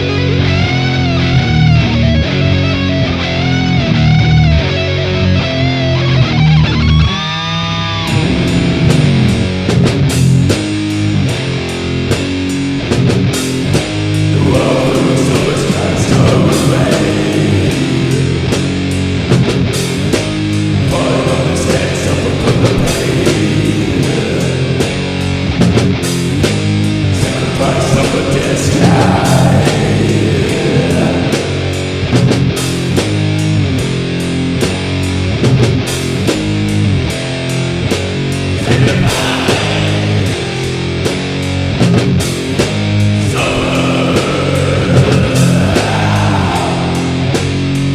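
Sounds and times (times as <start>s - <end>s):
heavy metal song: 0.0s - 47.9s
harsh vocals: 6.2s - 9.8s, 13.6s - 25.7s, 26.7s - 34.0s, 38.3s - 41.8s, 42.4s - 47.9s.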